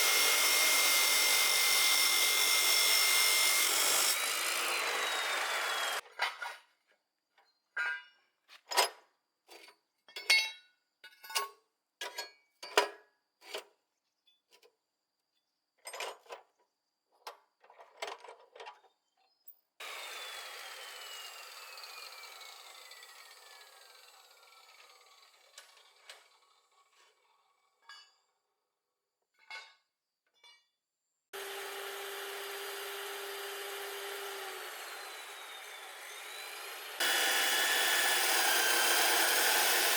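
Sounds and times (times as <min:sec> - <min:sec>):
power tool running steadily: 0:00.0 - 0:06.0, 0:19.8 - 0:26.6, 0:31.4 - 0:39.9
power tool whining: 0:00.0 - 0:06.0, 0:19.8 - 0:26.7, 0:31.4 - 0:39.9.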